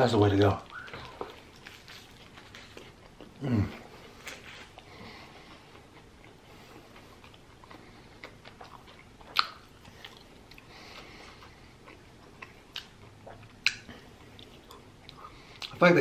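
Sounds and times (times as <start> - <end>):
chewing: 0.6 - 15.8
wet mouth clicks: 9.3 - 10.2, 13.6 - 15.8.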